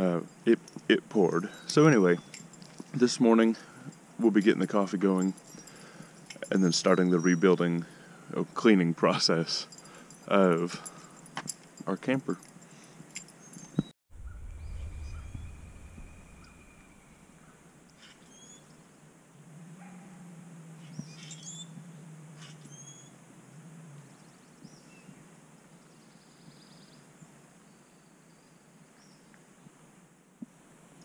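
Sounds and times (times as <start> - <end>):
low steady hum: 14.1 - 24.6
bird chirps and whistles: 14.2 - 17.4.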